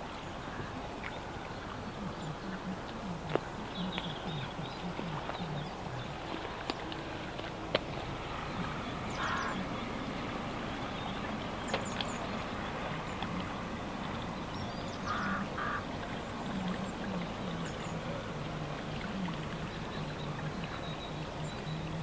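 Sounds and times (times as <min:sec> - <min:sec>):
distant road traffic hum: 0:00.0 - 0:22.0
harsh bird calls: 0:08.4 - 0:10.2, 0:10.8 - 0:16.0.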